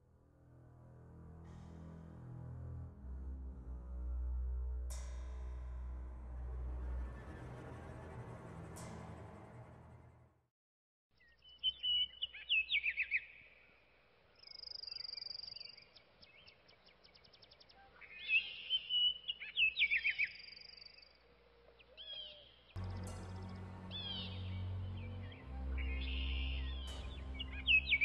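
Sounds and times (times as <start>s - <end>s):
songbirds singing: 11.1s - 28.0s.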